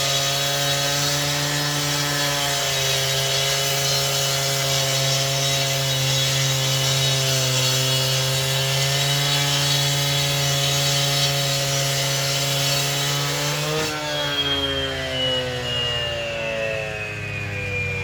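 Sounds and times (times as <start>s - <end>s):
hiss of saw cutting: 0.0s - 14.3s
power saw engine running: 0.0s - 18.0s.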